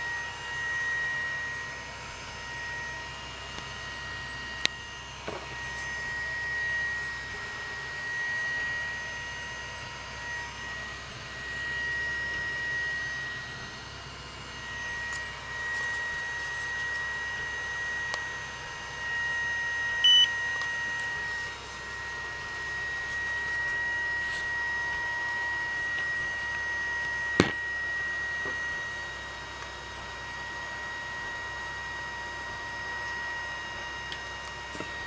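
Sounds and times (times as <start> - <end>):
spot welder whining: 0.0 - 35.0
short beep: 20.0 - 20.4.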